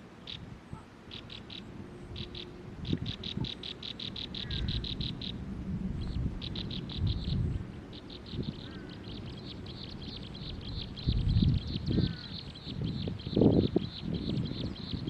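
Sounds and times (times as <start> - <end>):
bird calling: 0.2 - 15.0
low rumble: 4.4 - 9.4.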